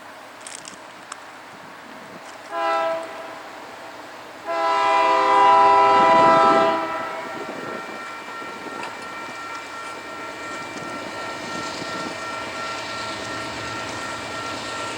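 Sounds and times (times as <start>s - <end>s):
train running noise: 0.0s - 14.9s
locomotive air horn blasts: 2.4s - 3.7s, 4.4s - 14.9s.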